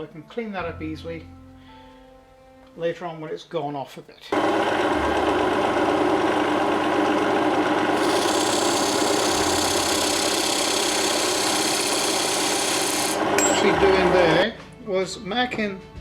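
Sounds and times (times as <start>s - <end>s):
lathe running: 4.3s - 14.4s.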